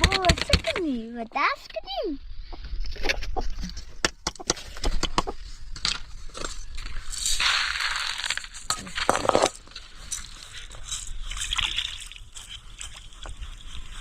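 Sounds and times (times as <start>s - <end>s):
liquid sloshing and splashing: 7.2s - 14.0s.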